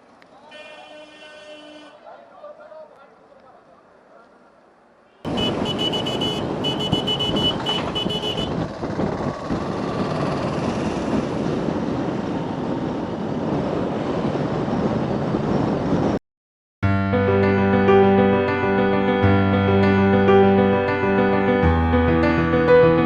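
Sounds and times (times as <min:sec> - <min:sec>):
vehicle engine din: 0:05.3 - 0:12.5.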